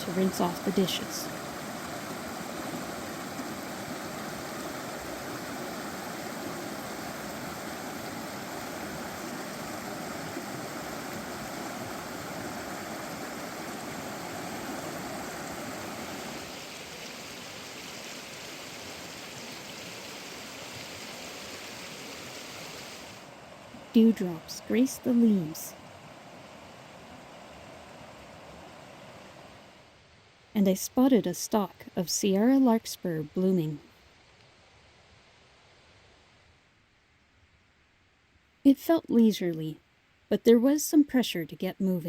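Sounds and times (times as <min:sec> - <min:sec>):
creek water flowing: 0:00.0 - 0:30.0.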